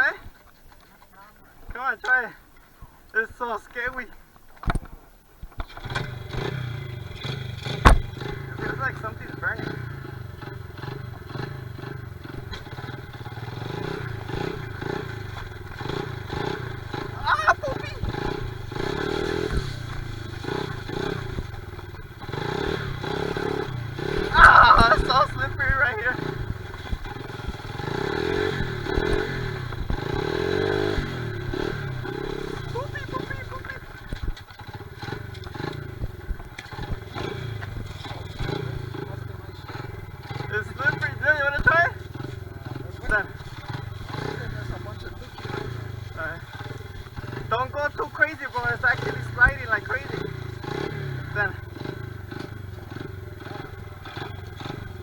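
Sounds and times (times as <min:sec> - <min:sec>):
small motorbike engine revving: 0:05.6 - 0:55.0
sharp knocks and clatter: 0:07.2 - 0:08.5.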